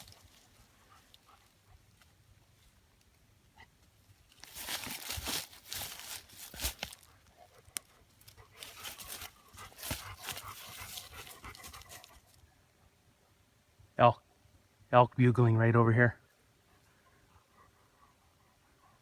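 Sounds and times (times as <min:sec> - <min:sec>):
rustling and crackling: 0:00.0 - 0:03.2, 0:03.9 - 0:12.4
dog huffing and panting: 0:07.4 - 0:12.3, 0:16.7 - 0:19.0.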